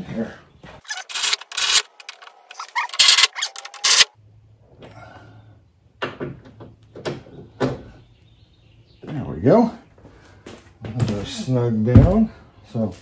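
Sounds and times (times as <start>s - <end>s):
ratchet wrench clicking: 0.9s - 1.9s, 2.8s - 4.1s.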